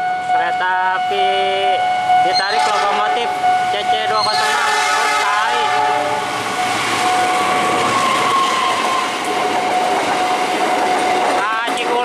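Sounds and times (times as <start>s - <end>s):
steady high tone: 0.0s - 10.5s
train wheels rumbling and clicking: 6.2s - 12.0s.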